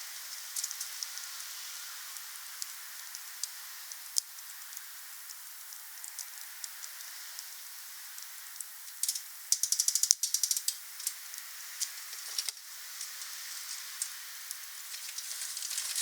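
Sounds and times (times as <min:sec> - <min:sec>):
fire hiss: 0:00.0 - 0:16.0
wood fire crackling: 0:00.0 - 0:16.0.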